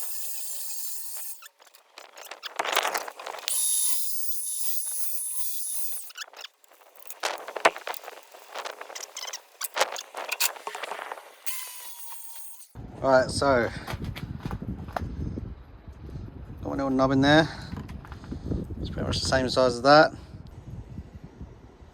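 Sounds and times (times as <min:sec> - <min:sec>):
power tool whine: 0:00.0 - 0:12.8
scraping on steel rod: 0:00.0 - 0:12.8.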